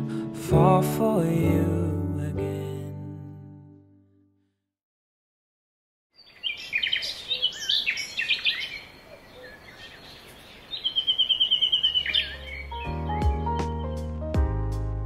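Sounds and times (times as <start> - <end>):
soft music: 0.0 - 4.5, 12.1 - 15.0
bird trilling: 6.2 - 13.4
songbirds chirping: 6.2 - 14.2.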